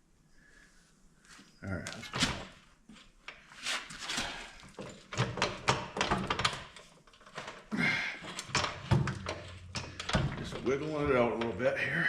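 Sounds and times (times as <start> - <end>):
metallic knocks and clunks: 4.7 - 11.8.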